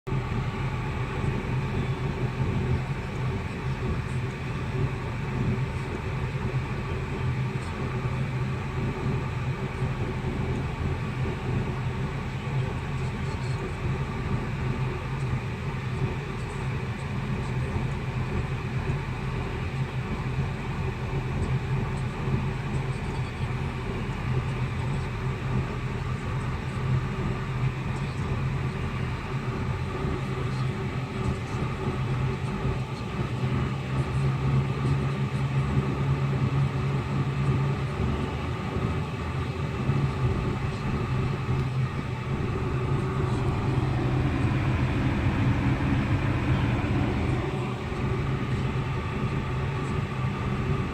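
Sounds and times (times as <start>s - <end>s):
car air conditioning hum: 0.1s - 50.9s.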